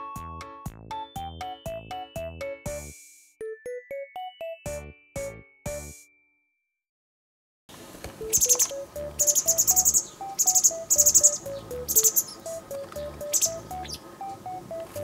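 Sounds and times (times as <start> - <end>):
plucked melody background music: 0.0 - 6.1, 8.2 - 15.0
wagtails chirping: 8.2 - 15.0.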